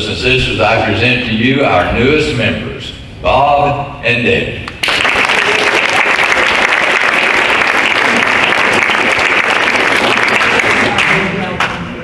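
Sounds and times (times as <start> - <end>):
crowd applauding: 4.8 - 11.7.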